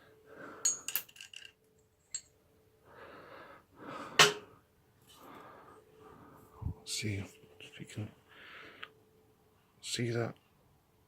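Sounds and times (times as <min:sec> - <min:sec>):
soft breathing: 0:02.8 - 0:06.9, 0:08.2 - 0:09.8.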